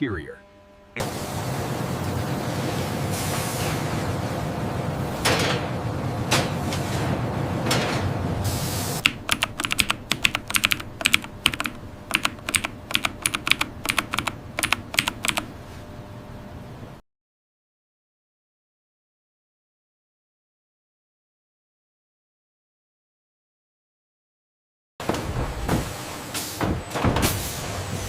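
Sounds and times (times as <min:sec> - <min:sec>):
factory machinery noise: 0:01.0 - 0:17.0, 0:25.0 - 0:28.0.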